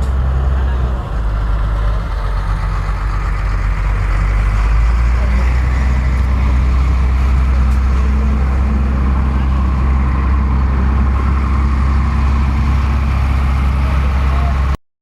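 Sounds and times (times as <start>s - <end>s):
vehicle engine running: 0.0s - 14.8s
wind and road noise: 0.0s - 14.8s.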